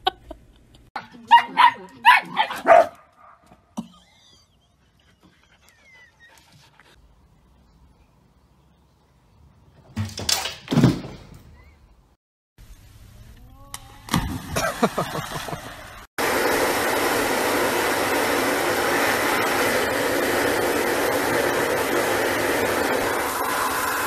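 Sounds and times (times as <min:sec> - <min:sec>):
bathtub water rushing: 0:16.2 - 0:24.0.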